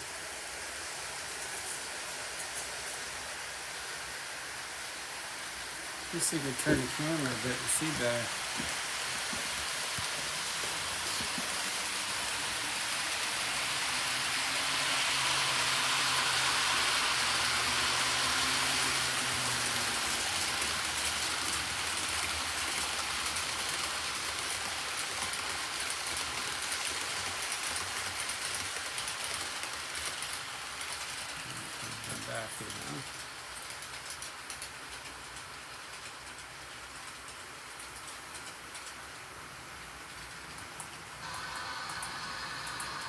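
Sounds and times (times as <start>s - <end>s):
model train wheels rolling on rail: 0.0s - 43.0s
ticking from rail: 15.1s - 39.3s.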